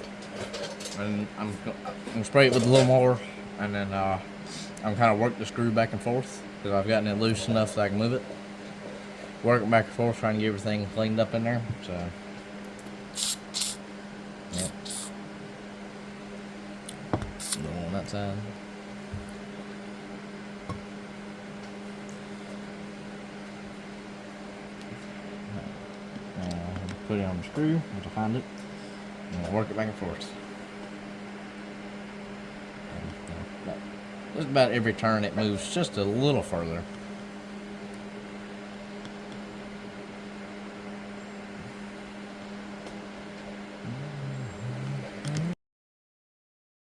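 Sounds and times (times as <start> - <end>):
machine hum: 0.0 - 45.6.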